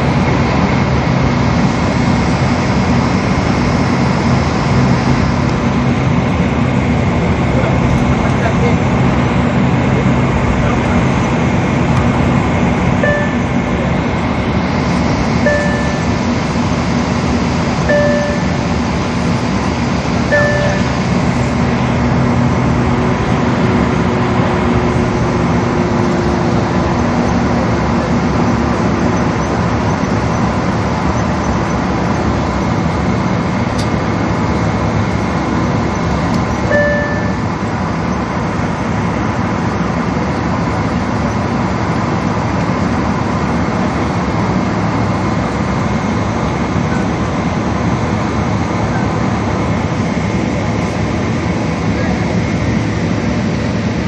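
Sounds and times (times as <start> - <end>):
vehicle running with low hum: 0.0 - 54.0
short beeps: 13.0 - 14.1, 14.9 - 16.2, 17.8 - 18.8, 20.3 - 21.2, 35.6 - 37.8.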